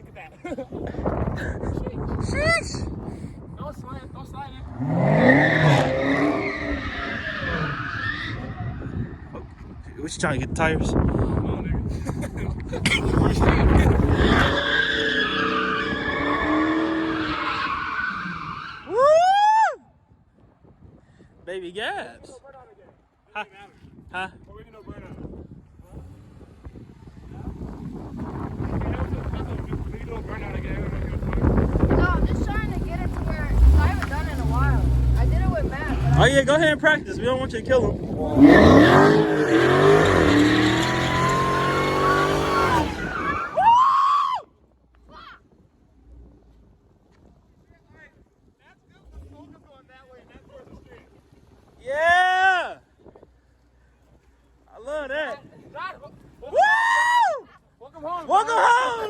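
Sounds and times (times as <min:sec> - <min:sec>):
tires squealing: 0:04.6 - 0:09.7, 0:12.8 - 0:19.6, 0:26.0 - 0:44.4
car engine revving: 0:26.0 - 0:43.5
man shouting: 0:51.9 - 0:52.8, 0:55.8 - 0:59.0.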